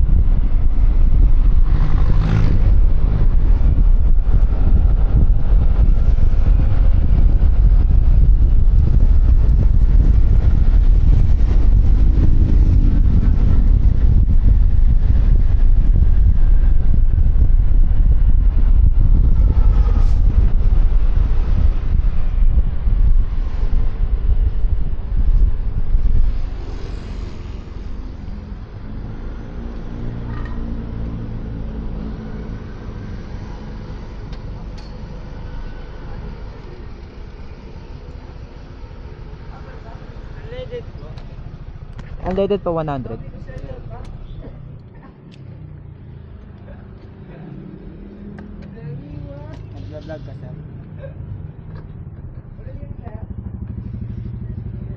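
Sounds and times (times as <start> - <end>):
wind buffeting microphone: 0.0 - 39.5
road noise: 0.0 - 54.9.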